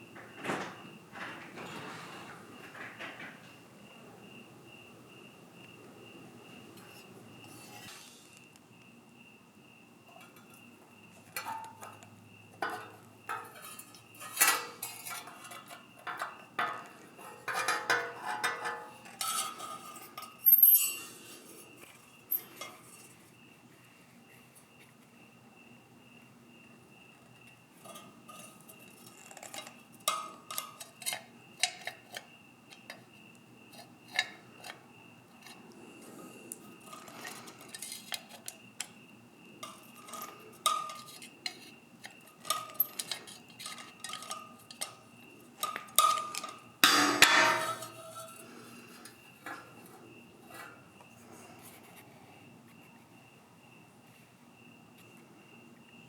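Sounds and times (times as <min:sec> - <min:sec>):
metal parts clinking: 0:13.3 - 0:21.2, 0:42.4 - 0:45.0.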